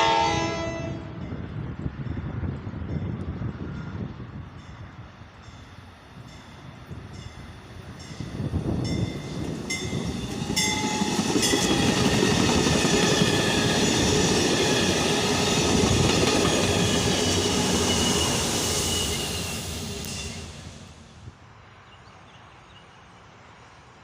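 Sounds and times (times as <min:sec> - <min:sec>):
train wheels rumbling on rails: 0:01.0 - 0:21.3.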